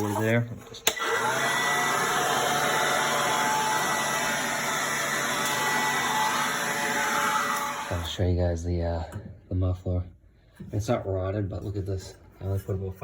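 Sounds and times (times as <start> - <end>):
handheld blower rushing air: 0.9 - 8.1.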